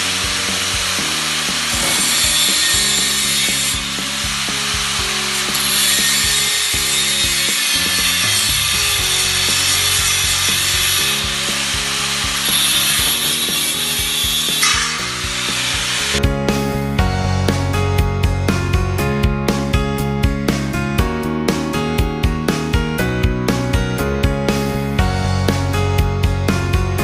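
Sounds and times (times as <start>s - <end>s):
power tool cutting: 0.0s - 16.2s
background music: 0.0s - 27.0s.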